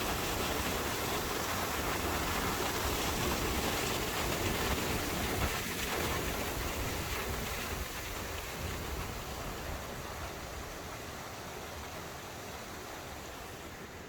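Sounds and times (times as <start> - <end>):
water falling and splashing: 0.0 - 10.4.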